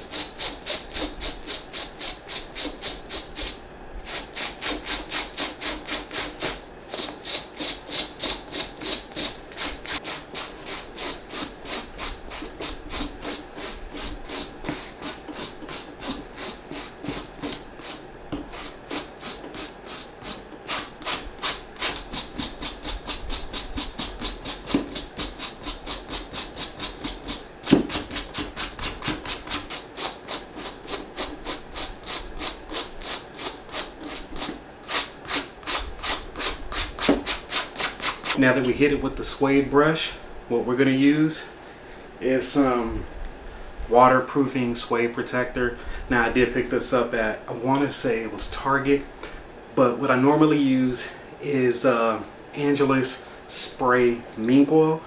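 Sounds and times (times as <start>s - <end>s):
brush scrubbing suede: 0.0s - 38.4s.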